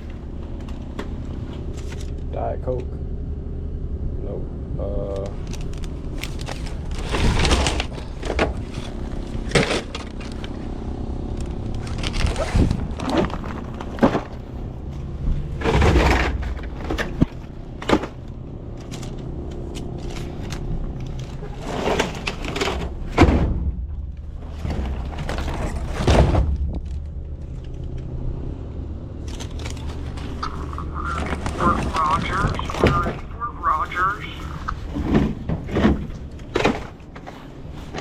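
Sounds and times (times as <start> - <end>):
steady low hum: 0.0 - 38.0
soda cases and bottles clattering: 11.8 - 14.6, 15.5 - 19.2, 34.8 - 38.0.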